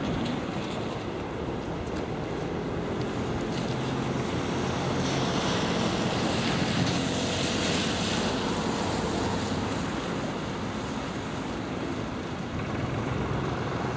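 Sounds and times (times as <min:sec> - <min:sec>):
diesel train rumbling: 0:00.0 - 0:13.9
low engine hum: 0:00.0 - 0:13.9.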